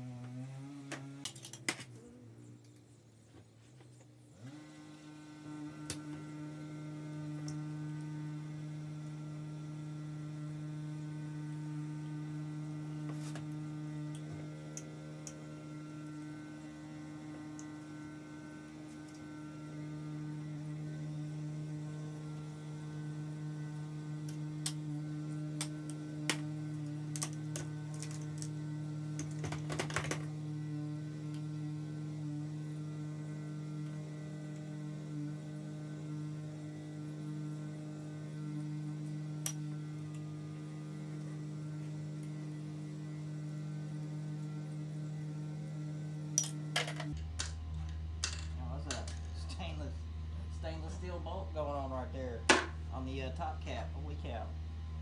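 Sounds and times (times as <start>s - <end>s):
electrical hum: 0.0s - 55.0s.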